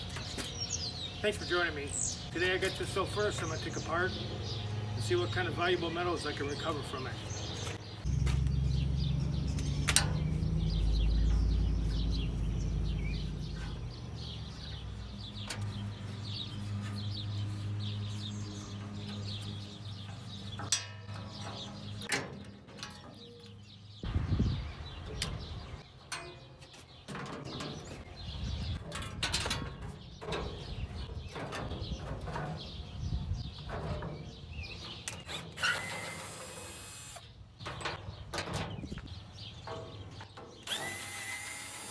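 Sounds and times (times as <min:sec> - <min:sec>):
birds chirping: 0:00.0 - 0:41.9
low rumble: 0:08.0 - 0:14.7.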